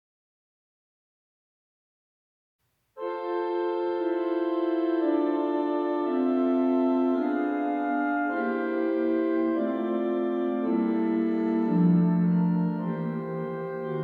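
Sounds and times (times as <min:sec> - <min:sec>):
organ playing slow chords: 0:03.0 - 0:14.0.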